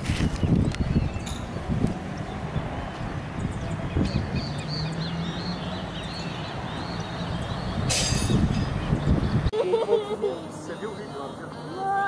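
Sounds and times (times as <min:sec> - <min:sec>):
bird chirping: 0:00.2 - 0:09.5.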